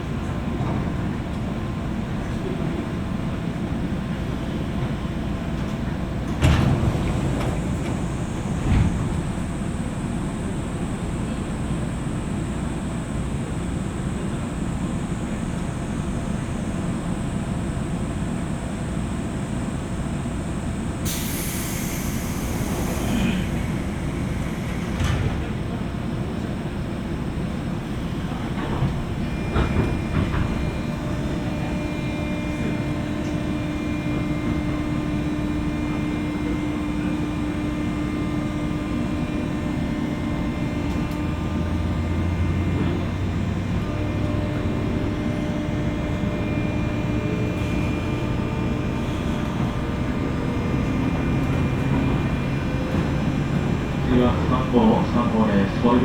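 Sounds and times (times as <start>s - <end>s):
train wheels rumbling on rails: 0.0s - 56.0s
burst of hiss: 21.0s - 25.0s
steady hum: 29.0s - 56.0s.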